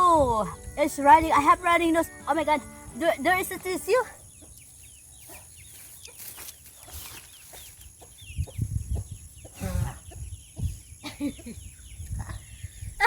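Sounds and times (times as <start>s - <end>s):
high insect-like hum: 0.0s - 13.0s
chickens clucking: 3.4s - 13.0s.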